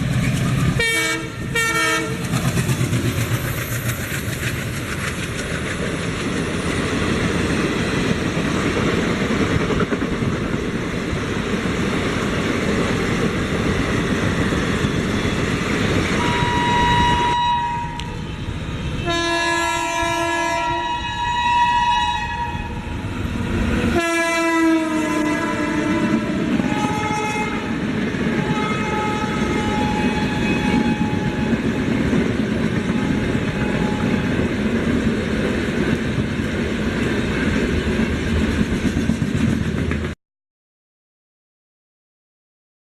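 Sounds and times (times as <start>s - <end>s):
train running rumble: 0.0s - 17.4s, 22.7s - 40.2s
multi-tone train horn: 0.8s - 2.3s, 16.2s - 23.2s, 23.8s - 31.8s, 32.9s - 34.4s.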